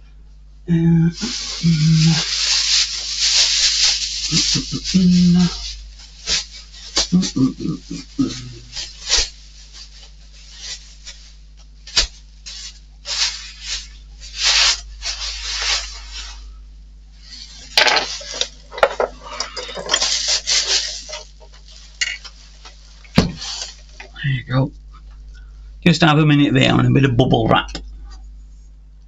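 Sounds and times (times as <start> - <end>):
plastic packaging rustling: 1.2 - 16.5, 17.2 - 24.2.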